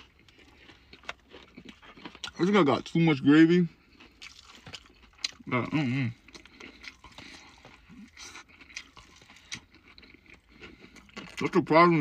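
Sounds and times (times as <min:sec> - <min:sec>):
person chewing crunchy food: 0:00.0 - 0:12.0.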